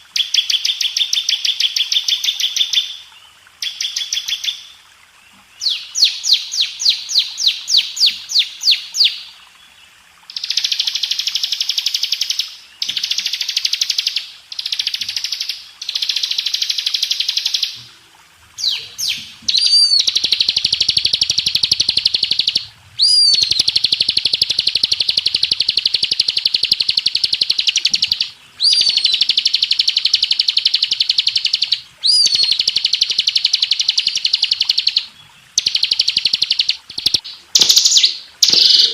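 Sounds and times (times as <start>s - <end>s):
bird singing trills: 5.6s - 9.3s, 18.6s - 38.9s.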